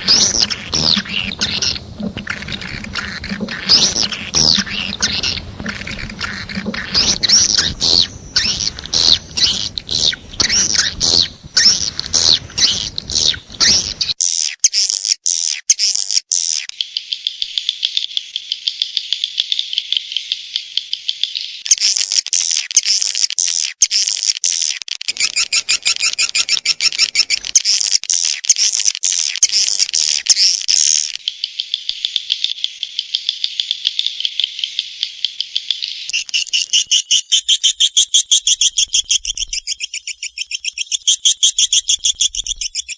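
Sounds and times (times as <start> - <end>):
swiftlets chirping: 0.0 - 14.2.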